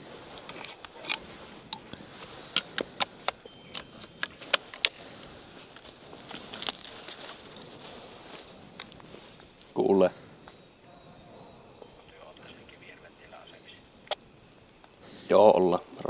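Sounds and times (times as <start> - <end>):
sharp clicks: 0.4 - 5.9
jacket rustling: 3.7 - 9.6.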